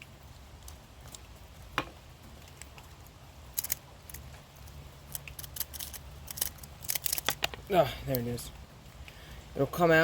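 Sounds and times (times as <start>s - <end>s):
low steady hum: 0.0s - 10.0s
screwdriver metallic clicks and scrapes: 5.1s - 7.6s.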